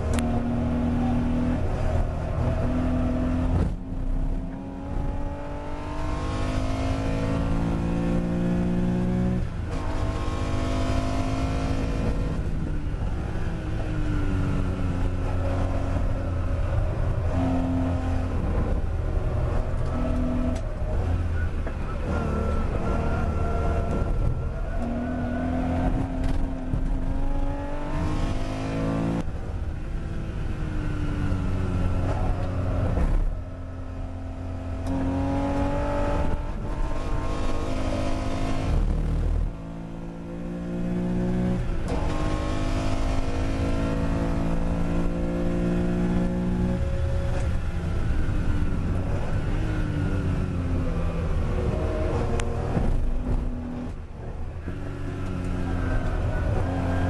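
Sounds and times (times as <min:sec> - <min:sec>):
car engine revving hard: 0:00.0 - 0:12.4, 0:22.0 - 0:29.2, 0:34.0 - 0:47.5.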